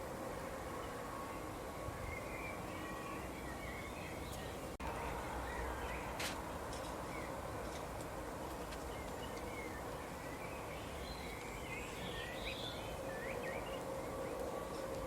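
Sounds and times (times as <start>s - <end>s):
outdoor background hiss: 0.0s - 15.0s
small songbirds chirping: 0.7s - 6.2s, 6.9s - 7.5s, 8.6s - 15.0s.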